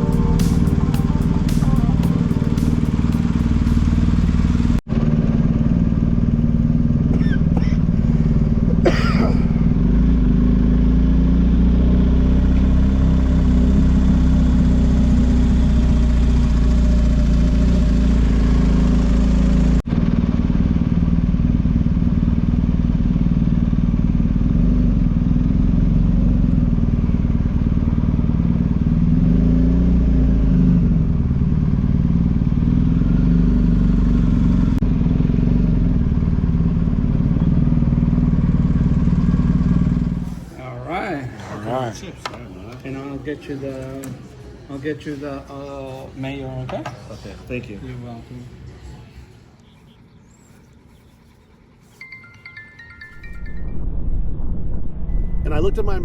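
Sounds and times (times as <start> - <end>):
motorcycle engine running: 0.0 - 40.4
rushing wind noise: 53.1 - 56.0.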